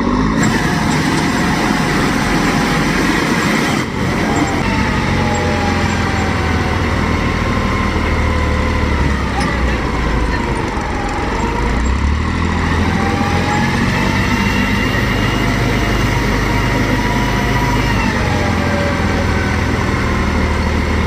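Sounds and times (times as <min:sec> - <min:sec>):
heavy diesel engines droning: 0:00.0 - 0:21.0.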